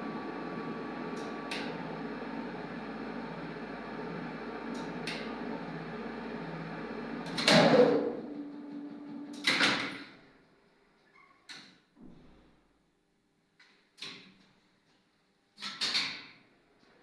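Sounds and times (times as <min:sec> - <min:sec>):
elevator motor humming: 0:00.0 - 0:09.5.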